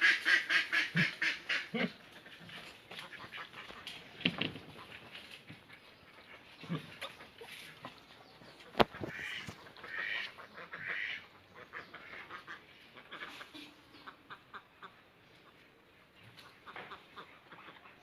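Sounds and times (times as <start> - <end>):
harsh quack-like animal calls: 0.0 - 3.9, 8.7 - 15.0, 16.4 - 18.0.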